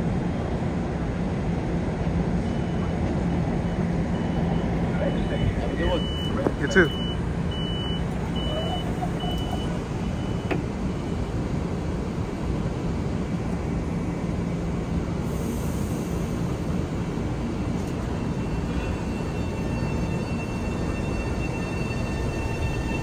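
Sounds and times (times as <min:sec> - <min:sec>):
train rumbling: 0:00.0 - 0:23.0
repeated high beep: 0:04.2 - 0:10.5.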